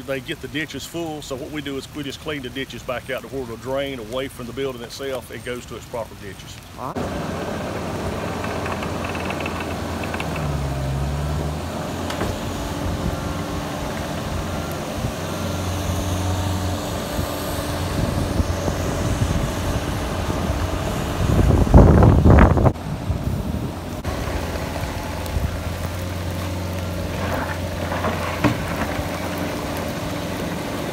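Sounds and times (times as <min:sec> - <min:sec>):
loader engine running: 0:06.8 - 0:30.9.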